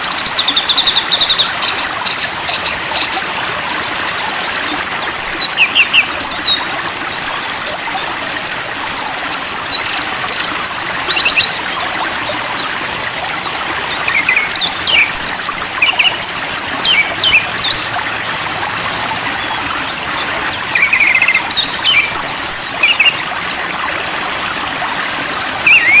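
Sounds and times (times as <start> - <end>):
water flowing: 0.0 - 26.0
songbird singing: 4.4 - 18.0, 19.4 - 23.6, 25.6 - 26.0.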